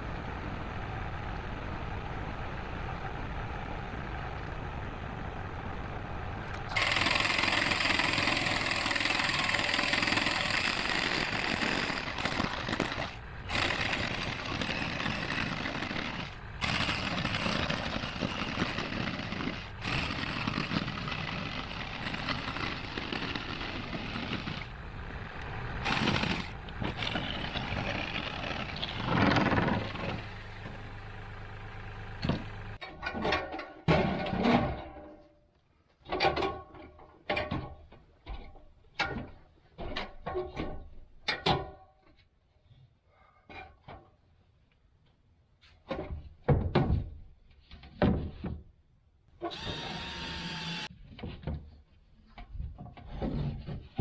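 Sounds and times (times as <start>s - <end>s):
dense machine noise: 0.0s - 32.8s, 49.5s - 50.9s.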